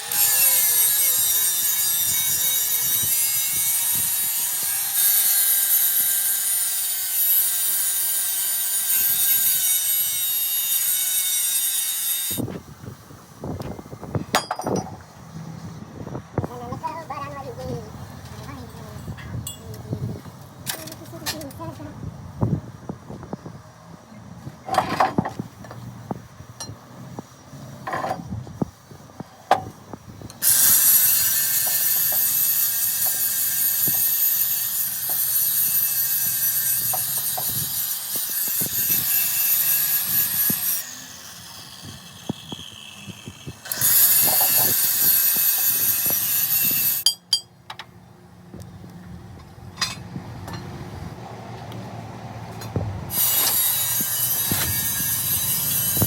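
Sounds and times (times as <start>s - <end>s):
angle grinder cutting steel: 0.0s - 12.5s, 30.4s - 47.2s, 53.1s - 56.0s.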